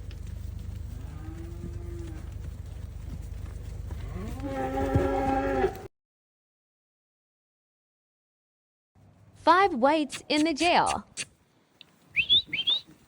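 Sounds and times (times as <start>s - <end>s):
cattle mooing: 1.0s - 2.3s, 4.0s - 5.9s.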